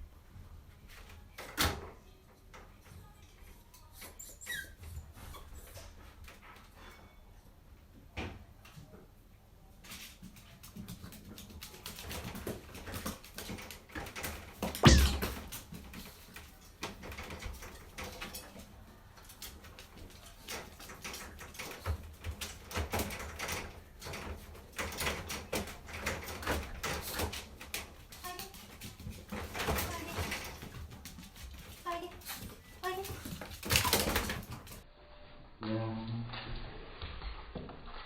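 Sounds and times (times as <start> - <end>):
dogs playing: 9.8 - 34.8
loud thump: 14.8 - 15.4.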